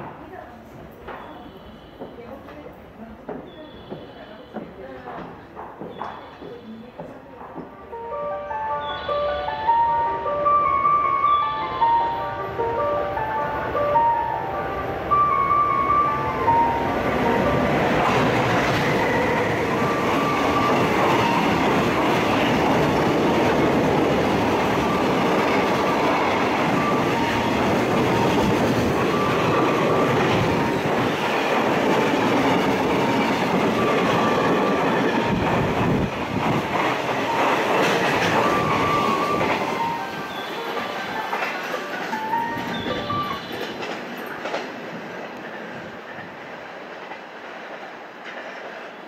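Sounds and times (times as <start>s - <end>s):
train wheels rumbling: 14.7s - 49.0s
wheels clacking over rail joints: 16.4s - 45.5s.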